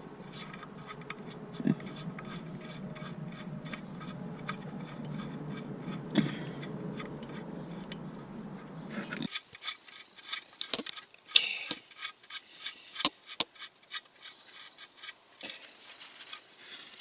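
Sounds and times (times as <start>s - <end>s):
hand tools clicking and tapping: 9.2s - 17.0s.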